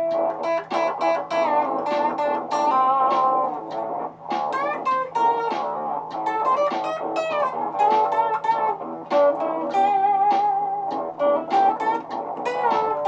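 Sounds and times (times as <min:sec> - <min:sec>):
electric guitar lead line: 0:00.0 - 0:13.0
layered guitar loops: 0:00.0 - 0:13.0.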